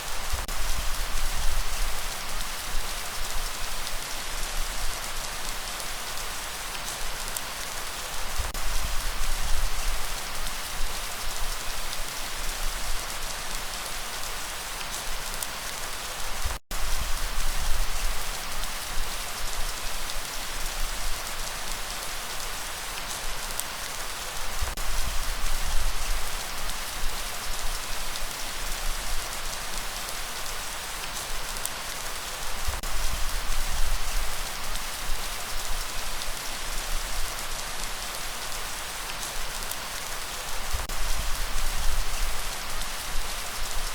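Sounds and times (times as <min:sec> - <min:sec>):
steady rain: 0:00.0 - 0:43.9.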